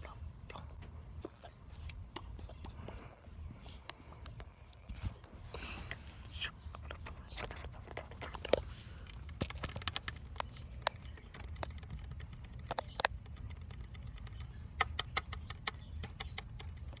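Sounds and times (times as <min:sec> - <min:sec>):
low steady hum: 0:00.0 - 0:17.0
sharp clicks and taps: 0:07.4 - 0:17.0.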